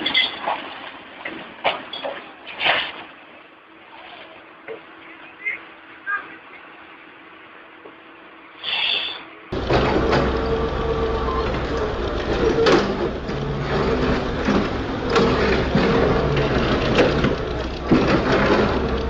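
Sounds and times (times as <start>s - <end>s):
heavy machine engine running: 9.5s - 19.0s
metallic knocks and clanks: 9.6s - 19.0s.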